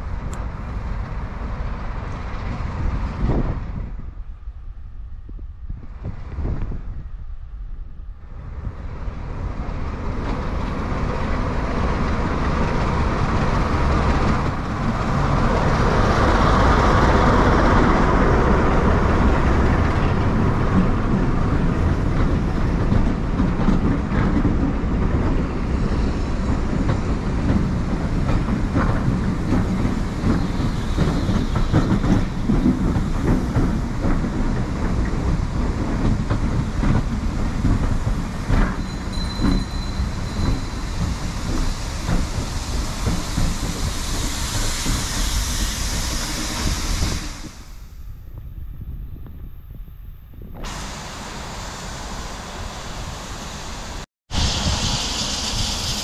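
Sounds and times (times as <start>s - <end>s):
diesel locomotive passing: 0.0s - 48.9s, 50.2s - 56.0s
wheels clicking over rail joints: 8.6s - 45.0s.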